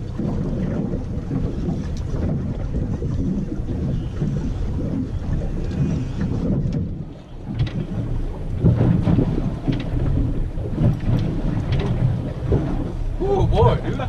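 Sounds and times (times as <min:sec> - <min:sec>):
water slapping kayak hull: 0:00.0 - 0:14.0
wind buffeting microphone: 0:00.0 - 0:14.0.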